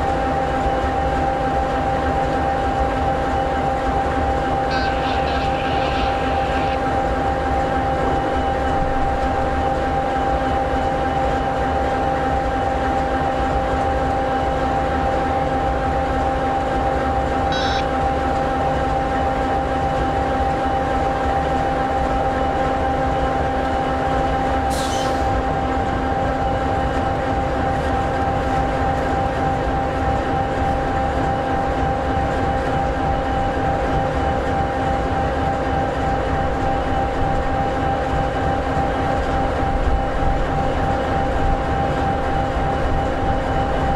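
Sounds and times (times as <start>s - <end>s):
constant whine: 0.0s - 43.9s
diesel locomotive idling: 0.0s - 43.9s
brief air hiss: 24.7s - 25.3s.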